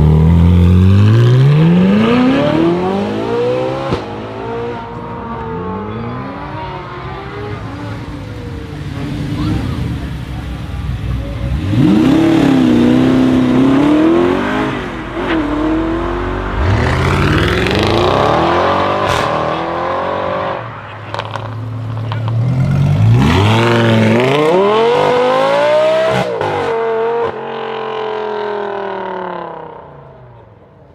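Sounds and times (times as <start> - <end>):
sports car engine accelerating: 11.3 - 29.8.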